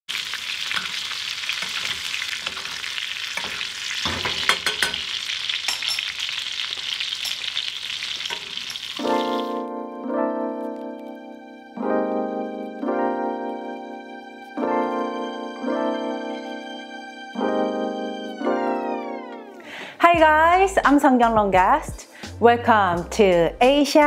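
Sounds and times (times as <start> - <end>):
steak sizzling in butter: 0.1 - 9.6
spoon clicking against pan: 0.7 - 6.1, 8.2 - 8.8
gentle piano tune: 9.0 - 20.6.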